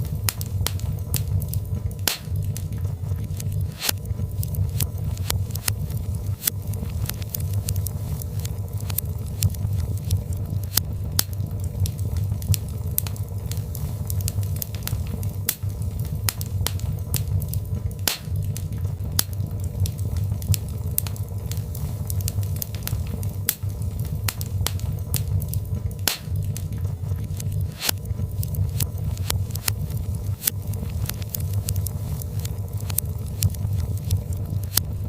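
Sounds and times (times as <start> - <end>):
fire crackling and popping: 0.0 - 35.0
low rumble of flames: 0.0 - 35.0.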